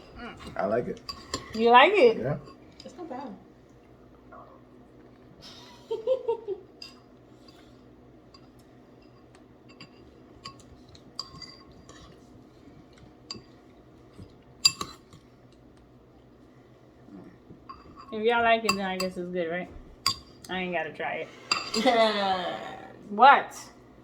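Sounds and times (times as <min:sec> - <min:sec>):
spoons clinking against bowls: 0:00.0 - 0:01.8, 0:06.8 - 0:07.6, 0:08.3 - 0:12.2, 0:12.9 - 0:13.6, 0:14.2 - 0:15.2, 0:17.6 - 0:19.2, 0:20.0 - 0:20.6, 0:21.5 - 0:22.0.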